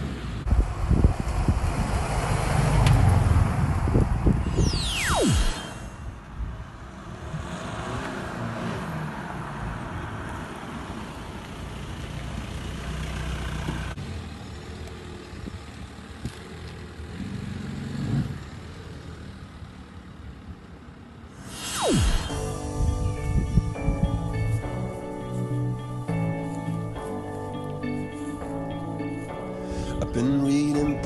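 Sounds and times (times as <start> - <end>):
diesel car engine droning: 6.2 - 20.4.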